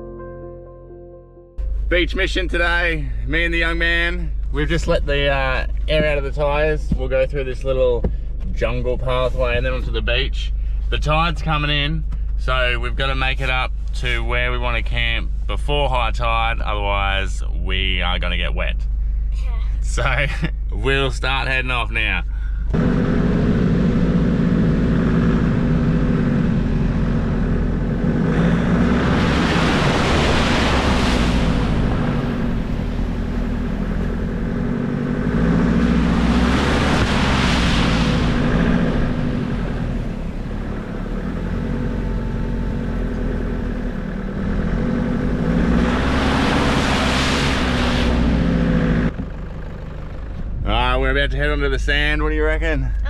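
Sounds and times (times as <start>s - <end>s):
vehicle engine running: 1.6s - 53.0s
vehicle splashing through puddles: 22.8s - 50.4s.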